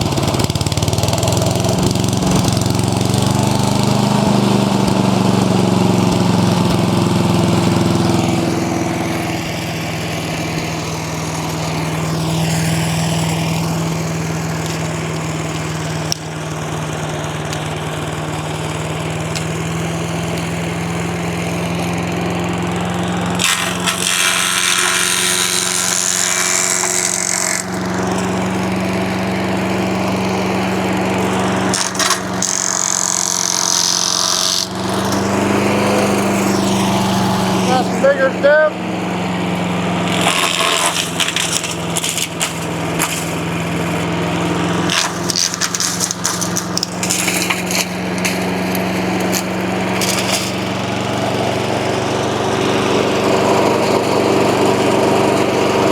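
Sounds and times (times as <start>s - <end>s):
engine running steadily: 0.0s - 55.9s
sticks being shredded: 10.3s - 16.6s, 23.0s - 36.9s, 40.0s - 51.0s.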